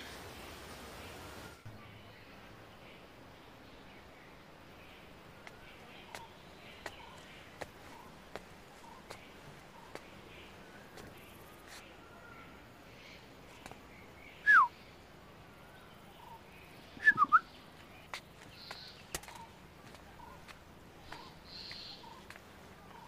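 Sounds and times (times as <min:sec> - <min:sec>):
bird whistle falling in pitch: 0:17.0 - 0:17.4.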